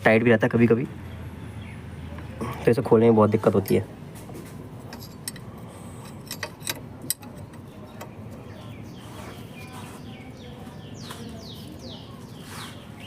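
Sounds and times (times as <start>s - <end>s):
bird chirping: 0.9s - 2.5s, 6.9s - 13.0s
hand tool clicking on metal: 4.9s - 8.2s.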